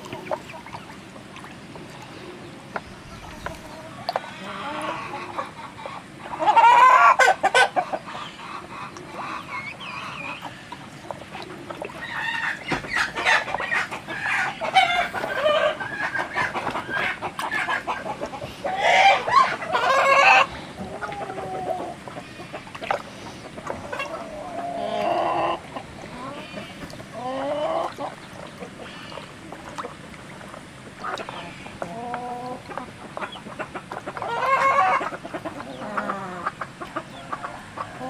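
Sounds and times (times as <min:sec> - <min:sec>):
chickens clucking: 0:00.0 - 0:38.0
loud chicken call: 0:06.4 - 0:07.8.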